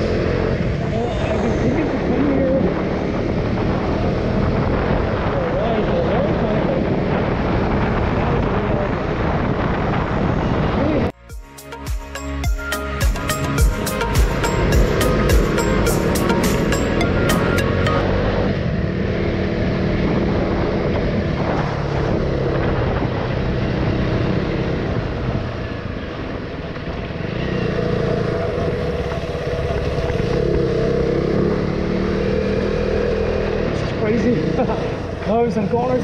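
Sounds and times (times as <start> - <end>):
wind on microphone: 0.4 - 11.2, 18.1 - 31.7
motorcycle engine running: 13.0 - 36.0.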